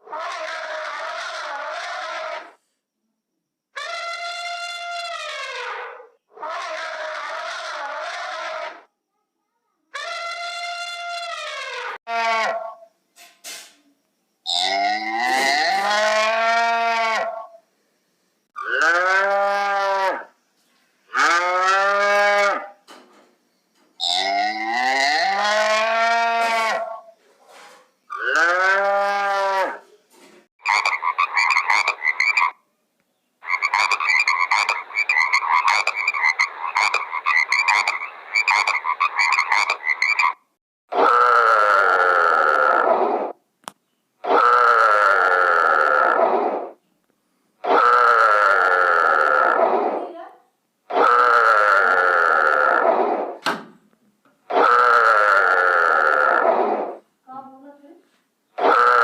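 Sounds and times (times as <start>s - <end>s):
rapid pulsing croak-like calls: 0.0s - 2.6s, 3.8s - 8.9s, 10.0s - 12.9s, 14.4s - 17.6s, 18.4s - 20.4s, 24.0s - 27.2s, 28.1s - 29.8s, 30.6s - 32.7s, 33.4s - 43.4s, 44.2s - 46.8s, 47.6s - 50.2s, 50.9s - 53.4s, 54.5s - 57.1s, 58.6s - 59.0s
long drawn-out animal calls: 0.0s - 2.8s, 3.7s - 8.9s, 9.8s - 12.9s, 14.4s - 17.6s, 18.6s - 20.4s, 21.1s - 22.8s, 24.0s - 29.9s, 30.6s - 32.7s, 33.4s - 43.4s, 44.2s - 46.8s, 47.6s - 50.3s, 50.9s - 53.4s, 54.5s - 57.1s, 58.6s - 59.0s.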